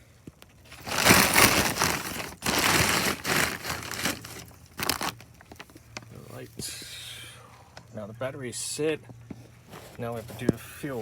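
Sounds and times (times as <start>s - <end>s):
plastic tarp crinkling: 0.7s - 5.8s.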